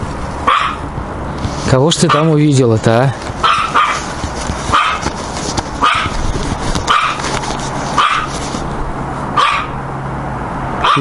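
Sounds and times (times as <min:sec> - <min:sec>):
dog barking: 0:00.5 - 0:00.8, 0:02.1 - 0:02.4, 0:03.4 - 0:04.0, 0:04.7 - 0:05.1, 0:05.8 - 0:06.2, 0:06.9 - 0:07.2, 0:08.0 - 0:08.3, 0:09.4 - 0:09.8.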